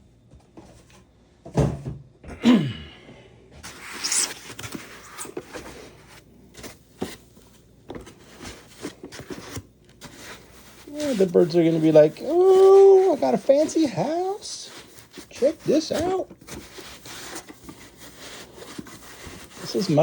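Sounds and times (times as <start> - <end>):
cardboard scraping rustle: 3.6 - 20.0.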